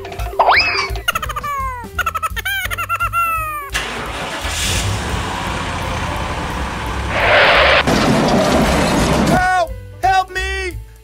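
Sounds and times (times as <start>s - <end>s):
car engine rumbling: 3.7s - 9.4s.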